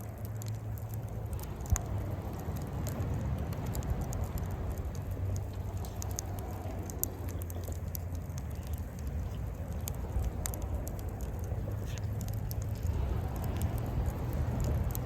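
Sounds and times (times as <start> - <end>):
low steady rumble: 0.0 - 15.0
sharp pops: 0.0 - 15.0
wood fire crackling: 0.0 - 15.0.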